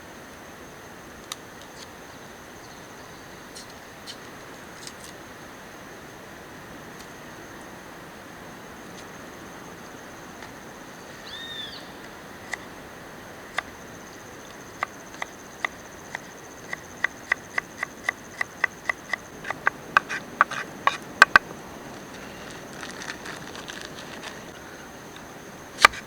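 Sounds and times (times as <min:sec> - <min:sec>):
high insect drone: 0:00.0 - 0:26.0
sharp taps: 0:16.7 - 0:21.5.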